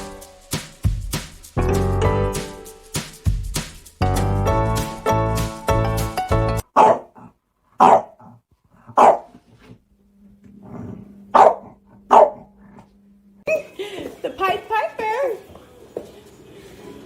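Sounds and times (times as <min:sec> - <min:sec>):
music: 0:00.0 - 0:06.6
dog barking: 0:06.6 - 0:08.3, 0:08.9 - 0:09.4, 0:11.3 - 0:12.5.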